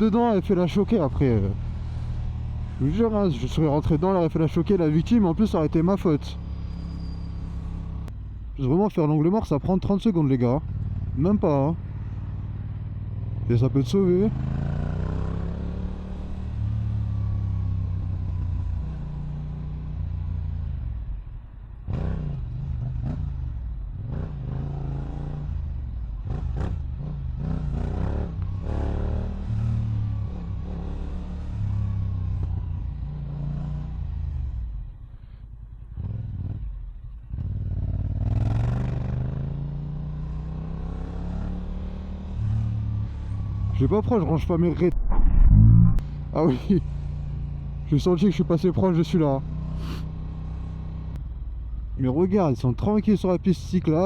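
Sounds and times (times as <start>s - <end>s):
motorcycle engine revving: 37.3s - 47.8s.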